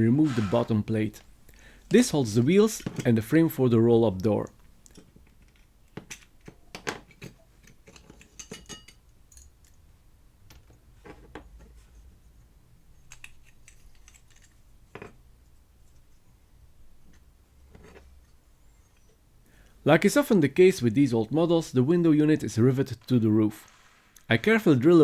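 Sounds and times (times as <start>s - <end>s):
toy parts clicking and clinking: 13.0s - 14.6s.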